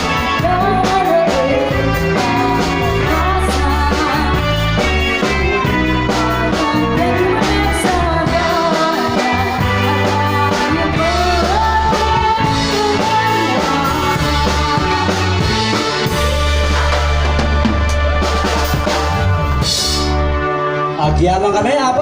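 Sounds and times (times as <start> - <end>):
person singing lead: 0.0 - 15.9
band playing through speakers: 0.0 - 22.0.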